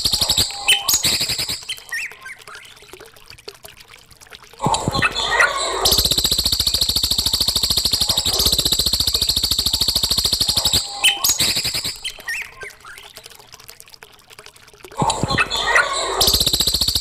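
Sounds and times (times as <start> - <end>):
bird chirps: 0.0 - 2.3, 5.8 - 12.8.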